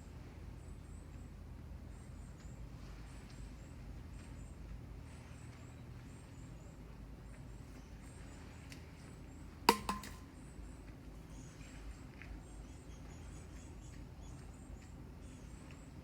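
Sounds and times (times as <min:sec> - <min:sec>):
sharp knocks: 0:09.7 - 0:10.2.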